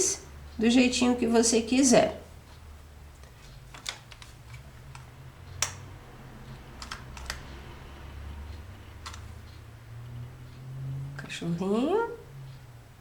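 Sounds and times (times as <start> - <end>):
light clicks and taps: 3.2 - 5.9, 6.5 - 7.6, 8.5 - 9.6.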